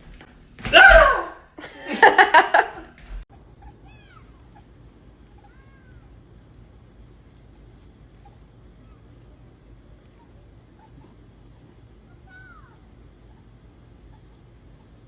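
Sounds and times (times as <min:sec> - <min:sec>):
cat yowling: 0:03.4 - 0:06.2, 0:08.2 - 0:09.5, 0:10.1 - 0:15.0.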